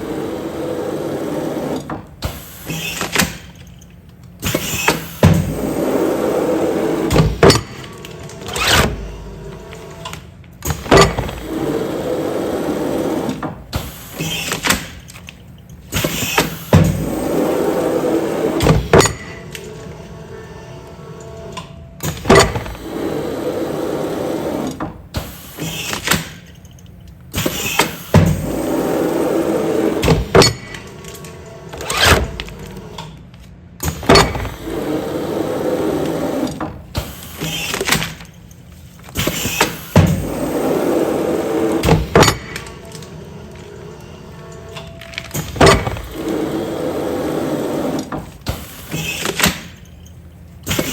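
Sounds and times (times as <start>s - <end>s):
machine motor hum: 0.0s - 2.0s, 39.3s - 49.2s
sealing machine mechanism clunks: 10.0s - 11.6s, 22.0s - 23.0s, 29.8s - 34.8s, 36.0s - 40.5s, 41.2s - 43.9s, 44.5s - 50.0s.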